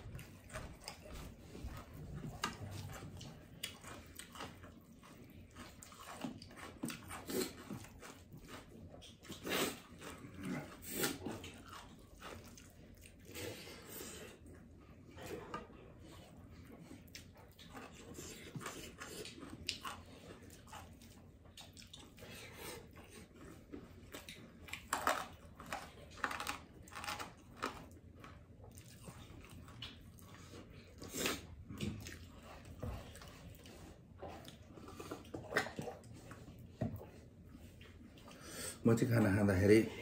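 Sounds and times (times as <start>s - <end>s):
man chewing and lip-smacking: 0.0s - 38.5s.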